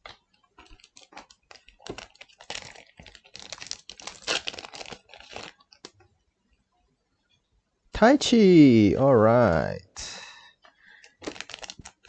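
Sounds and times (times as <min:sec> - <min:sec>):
card packaging clicks and rustles: 0:00.0 - 0:06.0, 0:10.9 - 0:12.0.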